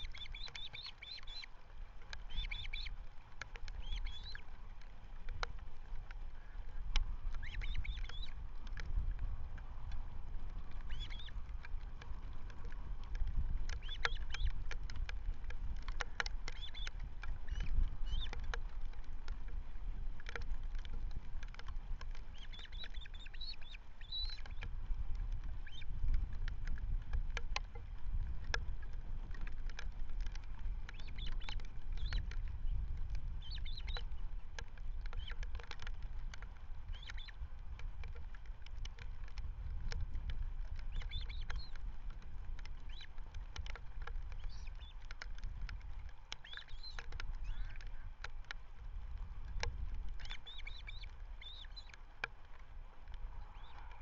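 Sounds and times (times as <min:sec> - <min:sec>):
bird chirps: 0:00.0 - 0:01.5, 0:02.3 - 0:03.0, 0:03.8 - 0:04.4, 0:07.4 - 0:08.3, 0:10.9 - 0:11.3, 0:13.8 - 0:14.5, 0:16.5 - 0:18.4, 0:22.3 - 0:24.6, 0:30.9 - 0:32.2, 0:33.4 - 0:34.0, 0:36.9 - 0:37.4, 0:40.9 - 0:41.8, 0:42.9 - 0:43.1, 0:44.4 - 0:45.0, 0:46.4 - 0:47.8, 0:50.2 - 0:52.0, 0:53.5 - 0:53.9
faint clicks: 0:00.0 - 0:54.0
wind rumbling on microphone: 0:00.0 - 0:54.0.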